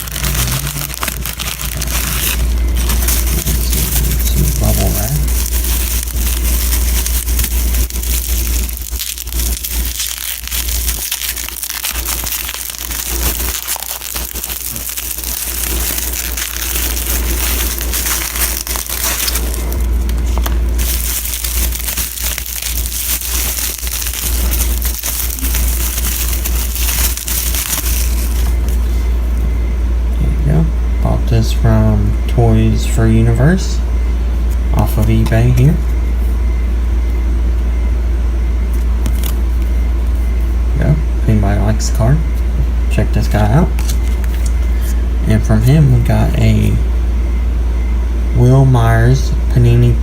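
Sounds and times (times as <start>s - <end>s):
bubble wrap crinkling: 0.0s - 29.2s, 38.7s - 40.6s, 43.2s - 46.8s.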